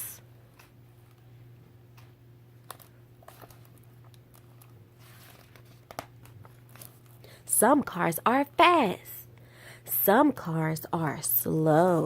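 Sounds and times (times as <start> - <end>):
steady low hum: 0.0 - 12.0
book pages rustling: 2.7 - 7.2.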